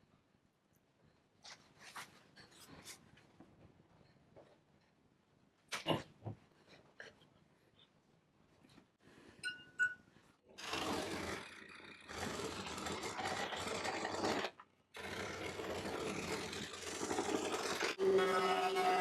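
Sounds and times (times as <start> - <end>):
power tool working wood: 10.6 - 19.0.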